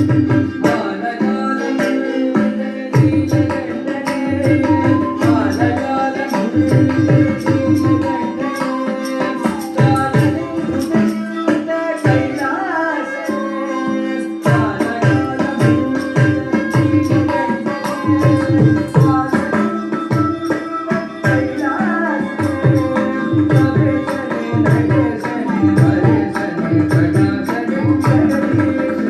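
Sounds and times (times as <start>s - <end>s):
person singing melody: 0.0s - 29.0s.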